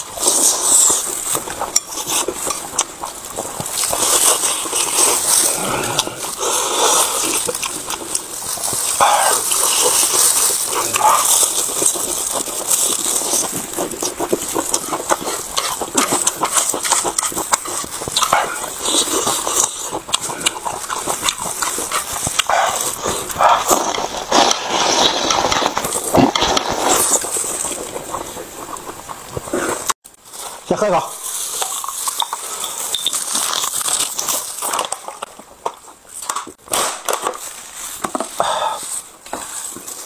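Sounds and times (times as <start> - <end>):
wet crunching chewing: 0.0 - 30.3, 31.1 - 40.0
clicking mouth sounds: 3.7 - 12.6, 13.2 - 30.0.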